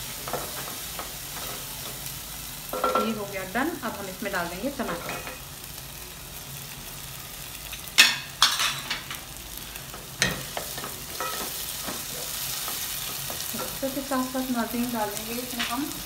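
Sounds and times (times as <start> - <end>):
food sizzling in a pan: 0.0 - 16.0
utensils knocking against pan: 2.7 - 3.2, 10.2 - 13.8.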